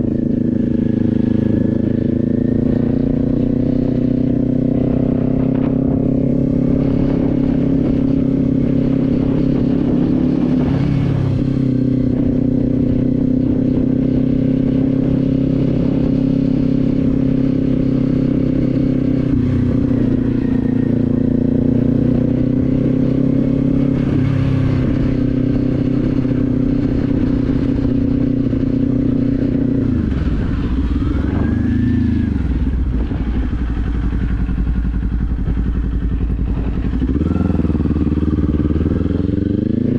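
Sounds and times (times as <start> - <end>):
motorcycle engine cruising: 0.0 - 39.9
wind rumble on microphone: 0.0 - 39.9.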